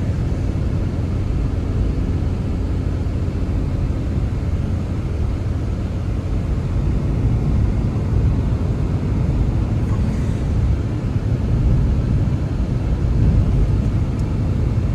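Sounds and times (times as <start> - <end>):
blizzard wind rumbling: 6.4 - 14.9.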